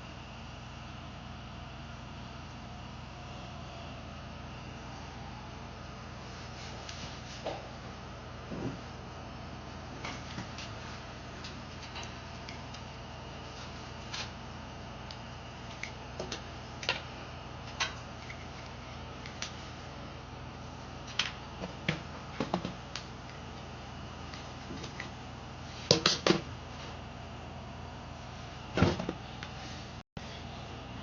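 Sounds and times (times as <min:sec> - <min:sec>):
steady low hum: 0:00.0 - 0:31.0
desk fan being handled clicks: 0:21.1 - 0:23.4.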